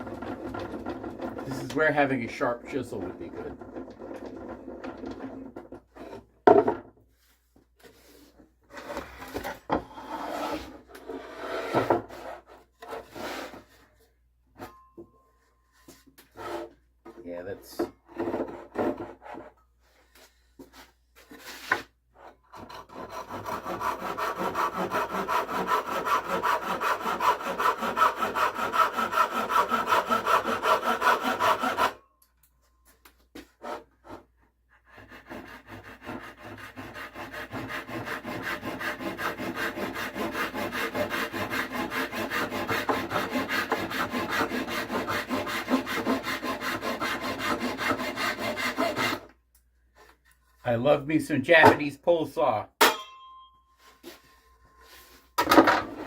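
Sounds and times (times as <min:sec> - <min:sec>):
pull saw cutting wood: 0:22.6 - 0:32.0, 0:34.9 - 0:49.3.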